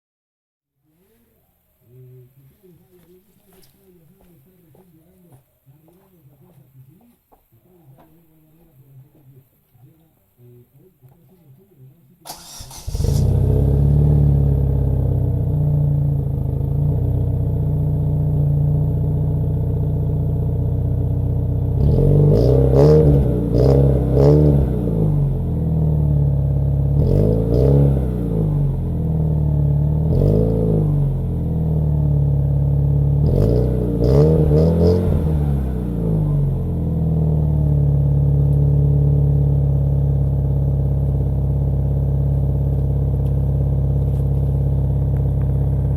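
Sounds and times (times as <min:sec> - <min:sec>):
car engine idling and revving: 0:12.3 - 0:45.9.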